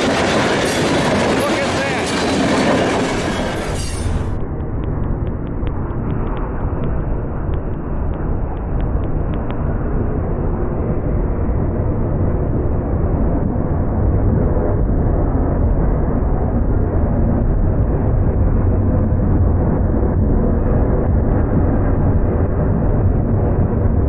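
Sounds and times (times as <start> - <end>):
freight train wheels rumbling on rail: 0.0 - 15.4.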